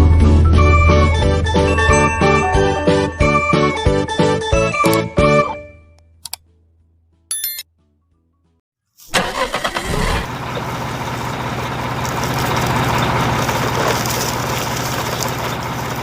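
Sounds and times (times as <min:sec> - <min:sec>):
engine starter cranking: 0:09.1 - 0:12.1
engine idling: 0:09.1 - 0:16.0.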